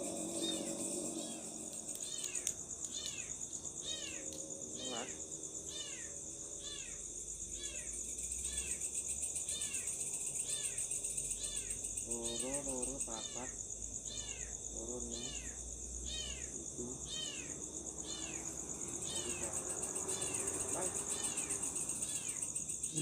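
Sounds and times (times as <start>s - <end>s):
drawn-out rising animal call: 0.0s - 1.7s
animal chirps: 0.0s - 7.0s, 19.0s - 23.0s
insect chorus buzzing: 0.0s - 23.0s.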